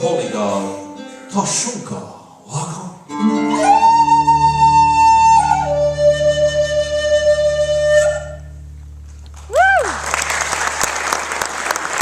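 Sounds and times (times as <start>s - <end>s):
flute holding long notes: 3.2s - 8.8s.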